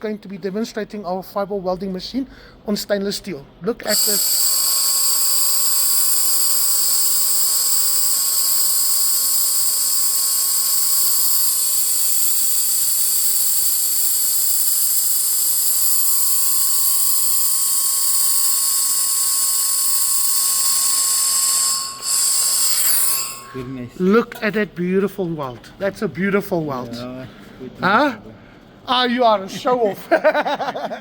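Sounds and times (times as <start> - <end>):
laser welder hissing and whining: 3.8 - 23.9.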